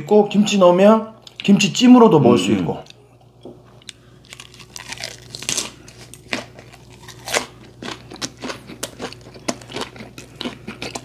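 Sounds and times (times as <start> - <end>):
wet crunchy chewing: 2.8 - 11.0.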